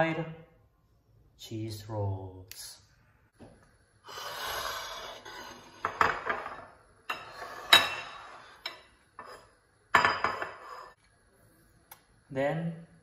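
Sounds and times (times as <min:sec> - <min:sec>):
bowls scraping on table: 0:04.6 - 0:09.6, 0:10.2 - 0:11.0.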